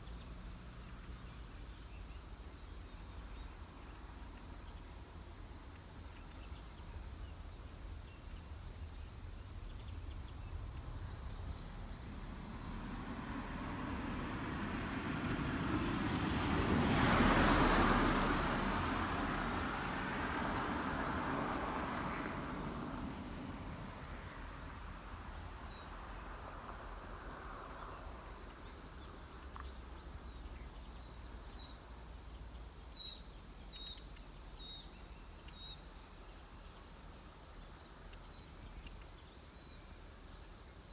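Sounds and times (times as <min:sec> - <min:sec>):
vehicle passing: 0:09.8 - 0:28.4.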